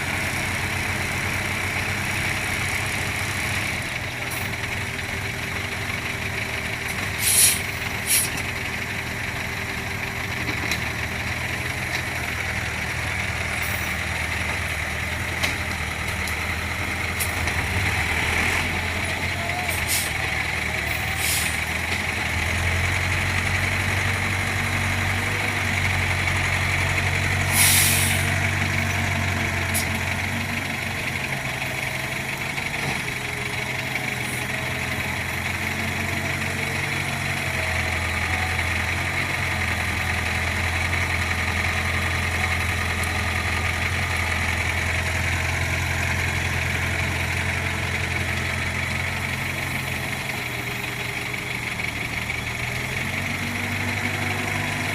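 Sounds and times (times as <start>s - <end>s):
excavator diesel engine running: 0.0s - 54.9s
short sharp hiss: 7.2s - 8.3s, 27.5s - 28.2s.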